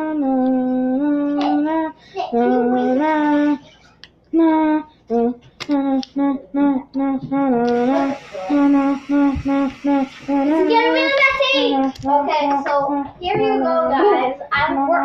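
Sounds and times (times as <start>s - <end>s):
girl singing: 0.0s - 3.7s, 4.3s - 15.0s
steady hiss: 7.7s - 11.7s.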